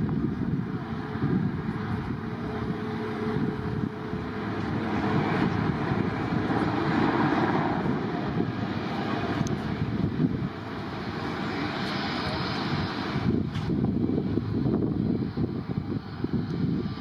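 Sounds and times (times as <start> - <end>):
airliner engine rushing: 0.0 - 17.0.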